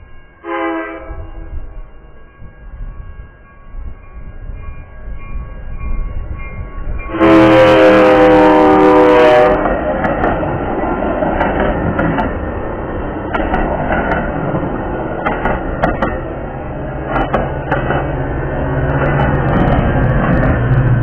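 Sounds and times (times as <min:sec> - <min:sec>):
train horn blast: 0:00.4 - 0:01.8, 0:07.1 - 0:09.9
wheels clicking over rail joints: 0:09.6 - 0:21.0.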